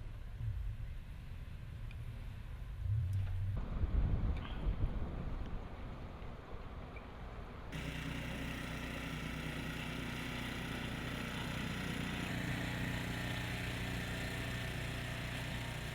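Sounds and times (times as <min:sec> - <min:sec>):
wind noise on microphone: 0:02.7 - 0:06.5
engine running steadily: 0:07.7 - 0:15.9.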